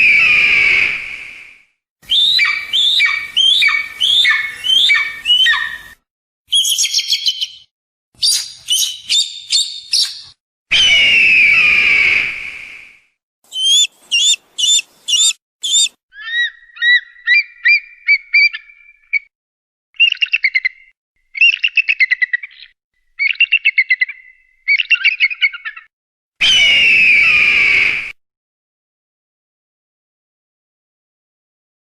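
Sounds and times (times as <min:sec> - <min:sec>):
hawk calls: 0:02.2 - 0:05.9, 0:13.5 - 0:18.7.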